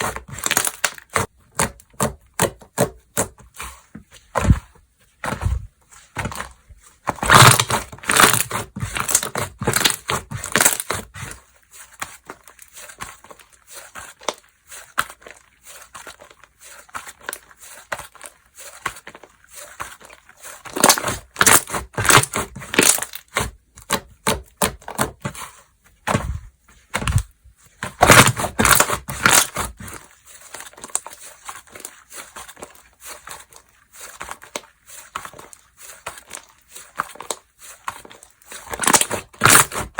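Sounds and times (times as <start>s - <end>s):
slime crackling and popping: 0.0s - 1.3s, 7.2s - 11.3s, 20.6s - 24.8s, 27.8s - 32.7s, 35.4s - 39.9s
slime squishing: 0.0s - 39.9s.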